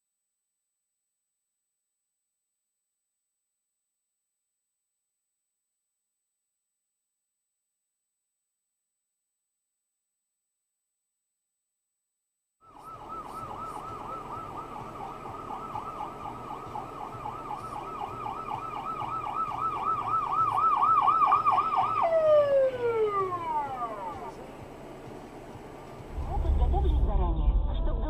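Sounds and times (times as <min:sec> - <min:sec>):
emergency siren yelping: 0:12.6 - 0:24.4
low vehicle rumble: 0:12.8 - 0:28.0.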